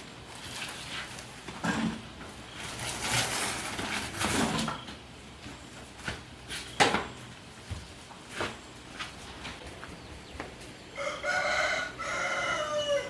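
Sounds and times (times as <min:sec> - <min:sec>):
handling rubbing and scraping: 0:00.0 - 0:06.8.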